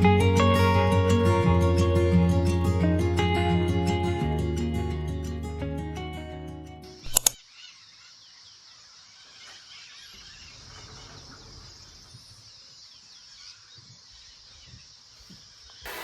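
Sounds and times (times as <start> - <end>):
small chirps and calls: 7.4 - 16.0
steady high hiss: 15.7 - 16.0.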